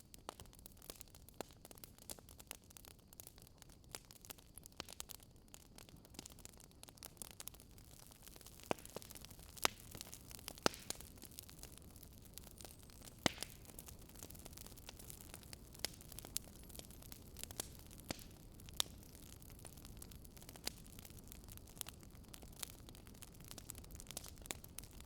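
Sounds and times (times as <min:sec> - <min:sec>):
soft steady hiss: 0:00.0 - 0:25.0
wood fire crackling: 0:00.1 - 0:25.0.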